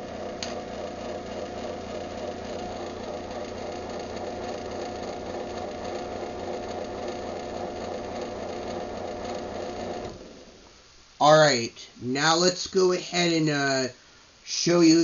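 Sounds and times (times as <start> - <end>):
garage door opener motor hum: 0.0 - 10.9.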